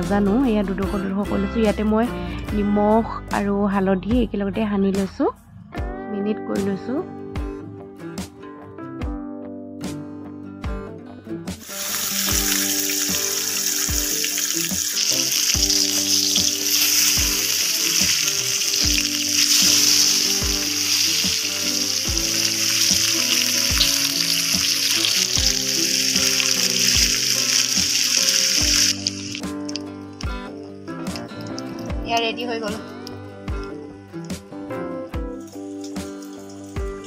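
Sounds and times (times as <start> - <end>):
background music with beat: 7.2 - 37.0
eggplant sizzling in hot oil: 11.6 - 31.9, 35.5 - 37.0.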